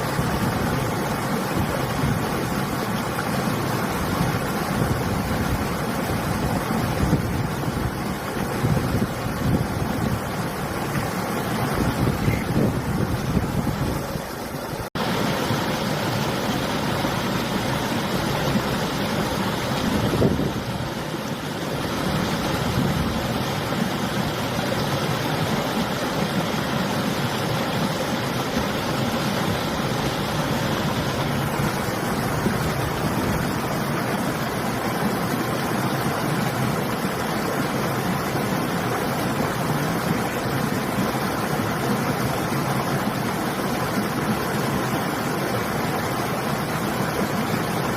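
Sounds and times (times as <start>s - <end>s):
river water flowing: 0.0s - 47.9s
wind gusting across microphone: 3.9s - 15.3s, 17.2s - 25.9s, 28.2s - 34.4s.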